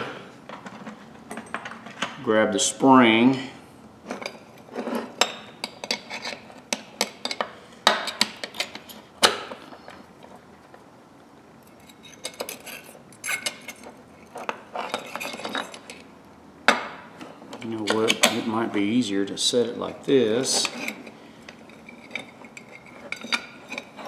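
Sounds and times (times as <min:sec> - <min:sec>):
metal tool parts clinking: 0:11.7 - 0:16.0, 0:20.4 - 0:24.0.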